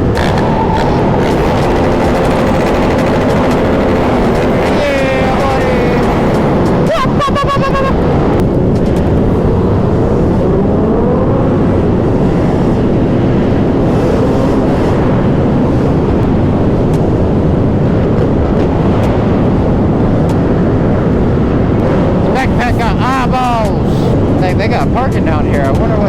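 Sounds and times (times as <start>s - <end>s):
many motorcycle engines droning: 0.0s - 26.0s
road noise: 0.0s - 26.0s.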